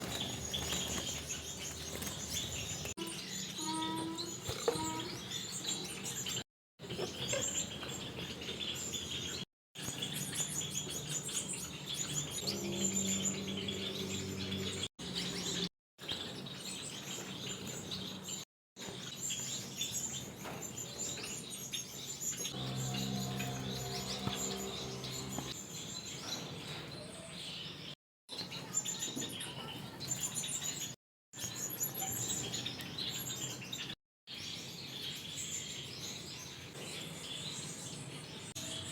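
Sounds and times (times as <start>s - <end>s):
finches chirping: 0.0s - 6.3s, 22.5s - 25.6s
low steady hum: 22.6s - 25.6s.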